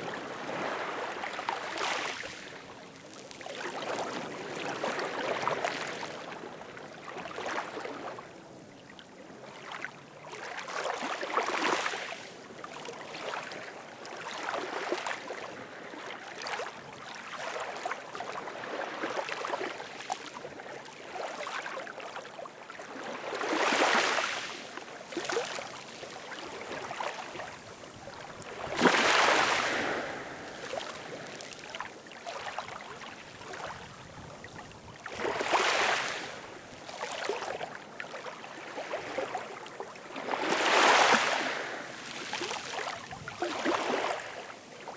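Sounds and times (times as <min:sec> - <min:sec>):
ocean waves washing in: 0:27.5 - 0:31.4.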